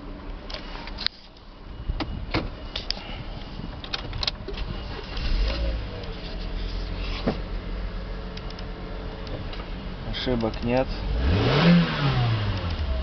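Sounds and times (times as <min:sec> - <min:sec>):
sharp clicks and handling noises: 0:08.3 - 0:10.9.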